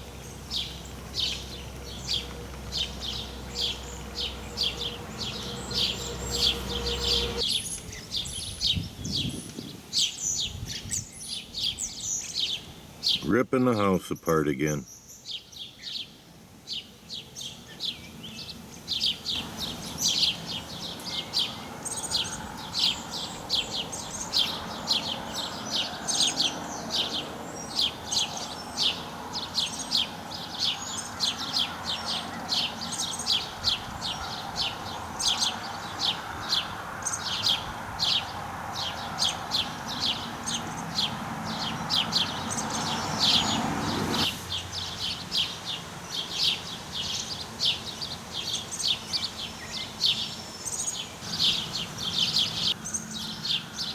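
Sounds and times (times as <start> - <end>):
birds chirping: 0.0 - 53.9
steady rushing noise: 41.3 - 44.8.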